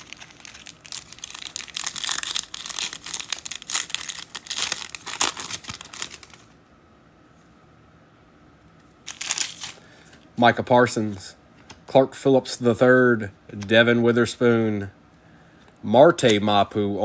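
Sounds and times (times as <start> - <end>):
foil wrappers tearing and crinkling: 0.0 - 6.5, 9.1 - 9.9.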